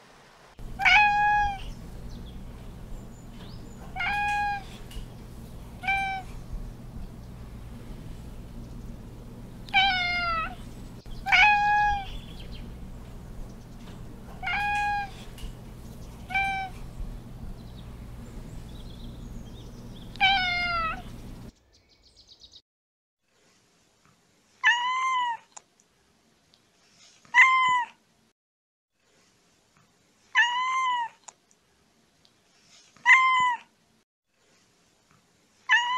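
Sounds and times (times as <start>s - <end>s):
cat meowing loudly: 0.6s - 1.8s, 3.9s - 4.8s, 5.8s - 6.4s, 9.7s - 10.6s, 11.2s - 12.2s, 14.4s - 15.3s, 16.3s - 16.8s, 20.2s - 21.1s, 24.6s - 25.5s, 27.3s - 28.0s, 30.3s - 31.2s, 33.0s - 33.7s, 35.7s - 35.9s
low background hum: 0.6s - 21.5s
kitten mewing: 0.7s - 1.8s, 3.9s - 4.9s, 5.8s - 6.4s, 9.7s - 10.6s, 11.2s - 12.7s, 16.3s - 16.9s, 20.2s - 21.1s.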